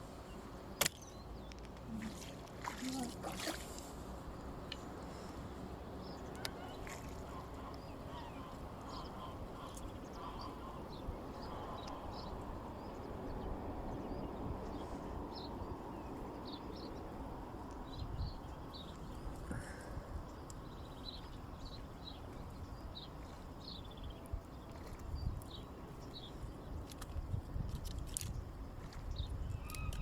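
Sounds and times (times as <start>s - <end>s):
ducks calling: 6.3s - 10.9s.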